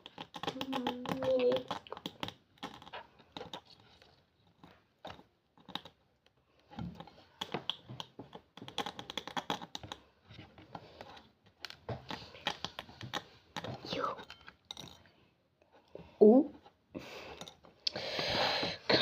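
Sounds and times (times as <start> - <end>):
needle tapping brittle candy: 0.0 - 3.8, 4.4 - 10.1.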